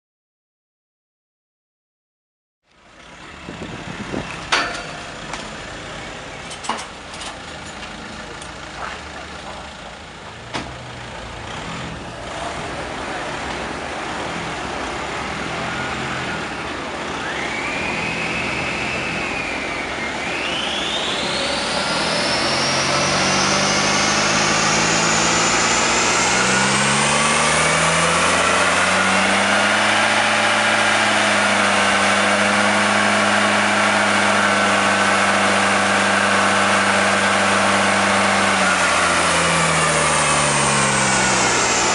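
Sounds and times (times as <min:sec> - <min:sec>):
rising whine: 0:02.7 - 0:07.8, 0:12.0 - 0:41.9
car engine revving through gears: 0:10.6 - 0:41.9.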